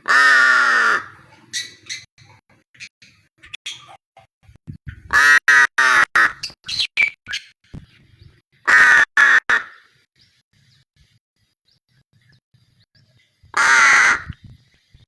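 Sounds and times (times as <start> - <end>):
bird giving harsh calls: 5.1 - 7.5, 8.7 - 9.8, 13.6 - 14.4.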